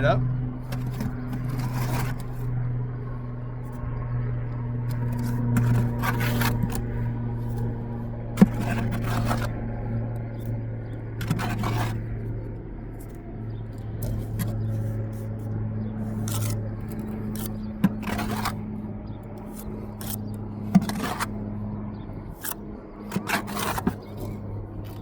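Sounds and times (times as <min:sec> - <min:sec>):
steady low hum: 0:00.0 - 0:25.0
trowel scraping mortar: 0:00.7 - 0:02.6, 0:04.9 - 0:10.6, 0:11.2 - 0:12.3, 0:13.0 - 0:18.8, 0:19.4 - 0:21.4, 0:22.4 - 0:25.0.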